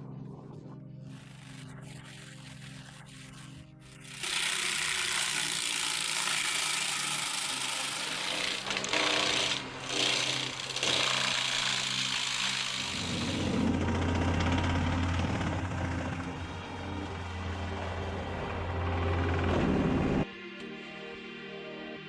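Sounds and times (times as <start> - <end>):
cutting head grinding through wood: 1.2 - 17.6.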